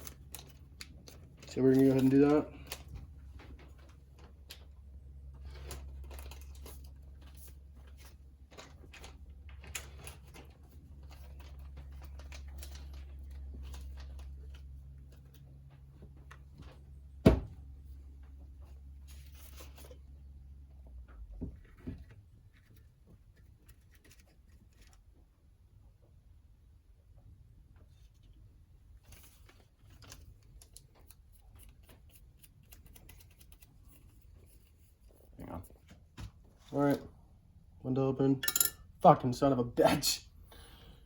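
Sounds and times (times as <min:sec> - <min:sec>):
knocks on workbench: 0:17.2 - 0:17.6.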